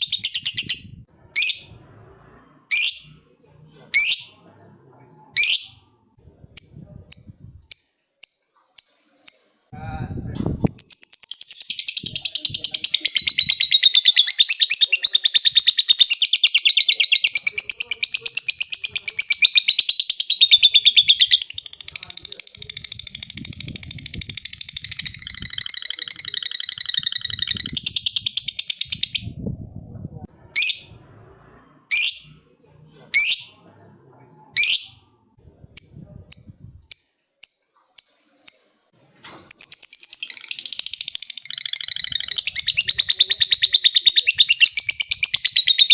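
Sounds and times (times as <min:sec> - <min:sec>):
lovebird chattering trill: 0:00.0 - 0:01.7, 0:05.4 - 0:05.8, 0:10.6 - 0:29.4, 0:39.5 - 0:45.9
sharp bird chirps: 0:00.0 - 0:01.7, 0:10.6 - 0:21.9.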